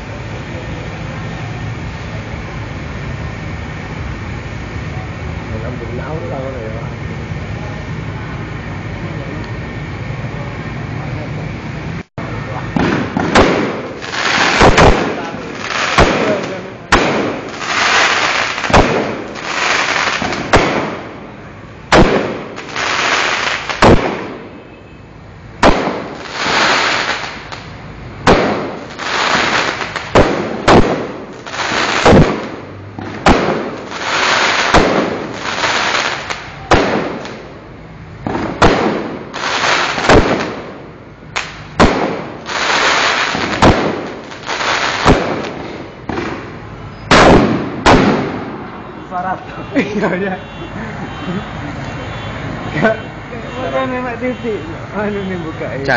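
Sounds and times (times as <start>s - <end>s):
fireworks bangs: 12.2s - 50.8s.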